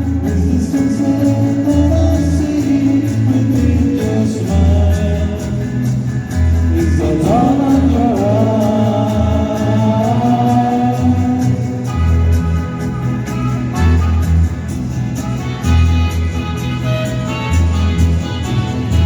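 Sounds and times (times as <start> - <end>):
person singing: 0.0 - 5.9, 6.7 - 12.2
guitar: 0.0 - 19.0
pulsing bass line: 0.0 - 19.0.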